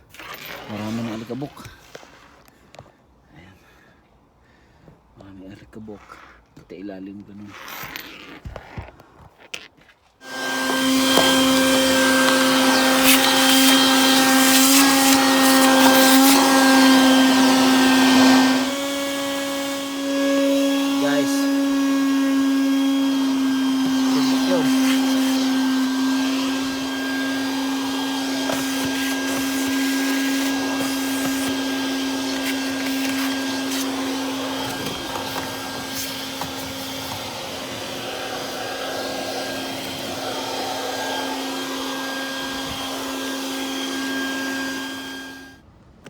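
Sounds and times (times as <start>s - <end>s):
vacuum cleaner running: 10.2s - 45.6s.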